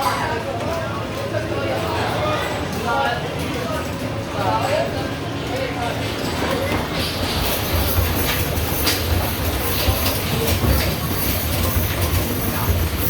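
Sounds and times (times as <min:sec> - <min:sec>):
basketballs rolling down ramp: 0:06.3 - 0:13.0.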